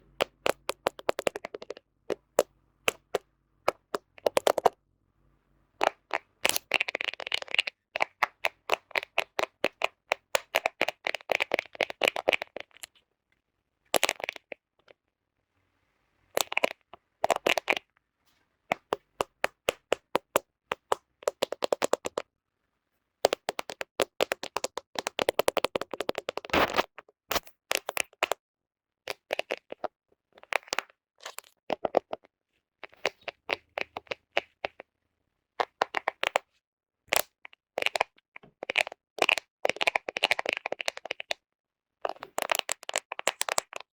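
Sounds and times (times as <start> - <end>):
fingernails tapping on phone: 0.2 - 4.8, 18.7 - 22.2.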